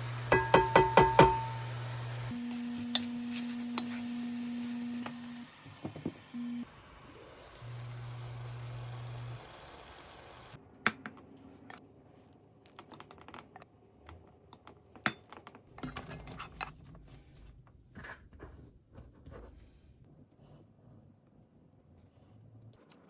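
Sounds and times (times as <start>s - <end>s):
utensils and dishes clinking: 0.3s - 1.8s.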